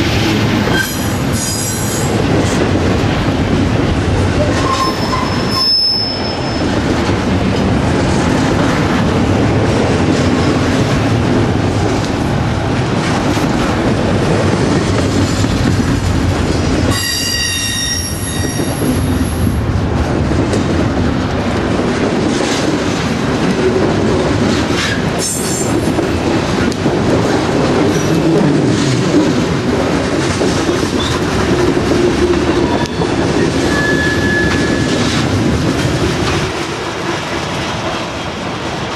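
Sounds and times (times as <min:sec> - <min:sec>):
high wheel squeal: 0:04.6 - 0:06.8, 0:16.9 - 0:19.1, 0:32.7 - 0:34.9
train wheels clacking over rail joints: 0:20.4 - 0:38.9.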